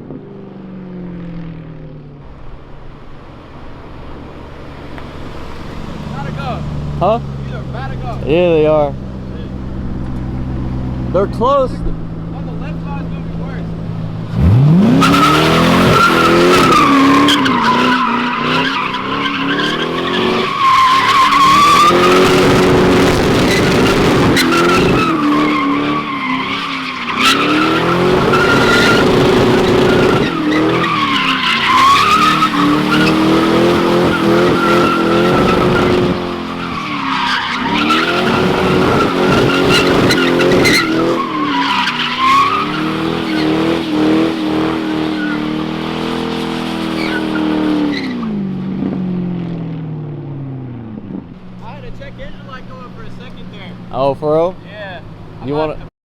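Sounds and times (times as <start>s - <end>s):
car engine at high revs: 0.0s - 55.9s
tyres squealing: 14.3s - 48.4s.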